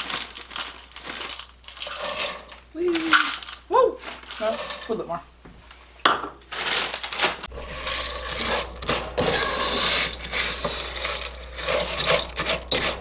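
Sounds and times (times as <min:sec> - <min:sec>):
noodles crunching in chocolate: 0:00.0 - 0:05.0.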